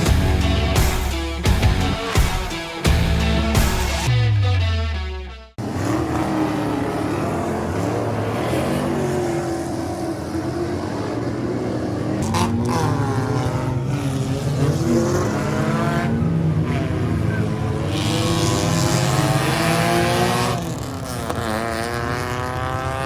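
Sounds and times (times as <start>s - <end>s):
music: 0.0s - 5.6s
race car engines at speed: 5.6s - 23.0s.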